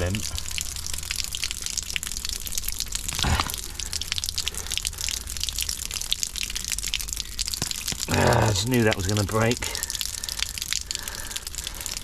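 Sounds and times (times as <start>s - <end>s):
small crackling clicks: 0.0s - 12.0s
water splashing and trickling: 0.0s - 12.0s
roots pulled from pipe: 3.0s - 4.6s.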